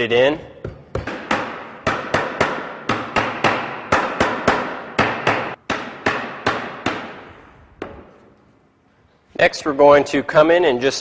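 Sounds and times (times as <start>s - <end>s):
hammer striking wood: 0.6s - 8.2s.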